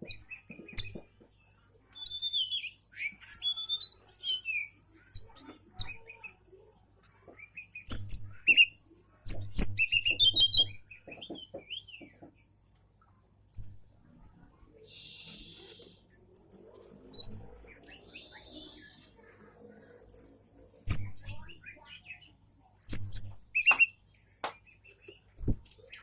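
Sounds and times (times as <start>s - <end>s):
bird singing whistles and trills: 2.0s - 5.2s, 7.0s - 12.0s, 17.1s - 26.0s
sharp bird clicks: 7.8s - 11.8s, 15.2s - 16.0s, 20.0s - 21.6s, 22.8s - 26.0s.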